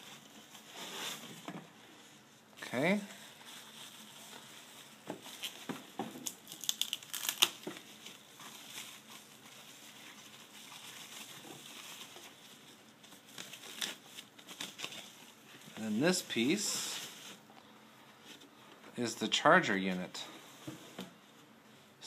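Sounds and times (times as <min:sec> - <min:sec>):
plastic packaging crinkling: 0:02.6 - 0:17.4.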